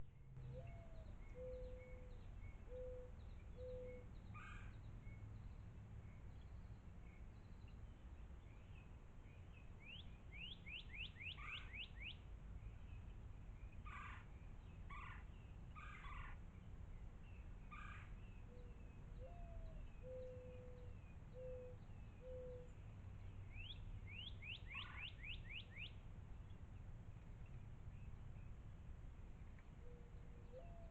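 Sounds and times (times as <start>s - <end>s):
songbird calls: 0.0s - 28.6s, 29.4s - 30.9s
low hooting bird call: 0.4s - 4.7s, 9.9s - 12.2s, 17.7s - 22.8s, 23.5s - 26.0s, 29.8s - 30.9s.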